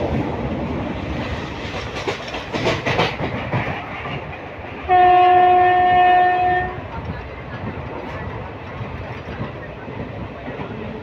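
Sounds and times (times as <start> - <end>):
train wheels clattering: 1.2 - 4.8
train horn blast: 4.9 - 6.8.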